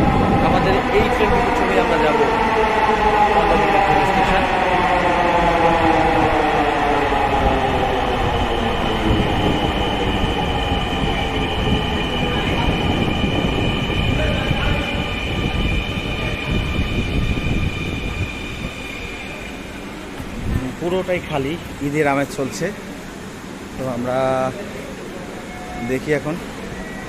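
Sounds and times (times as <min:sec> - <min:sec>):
train brakes squealing: 0:25.4 - 0:27.0.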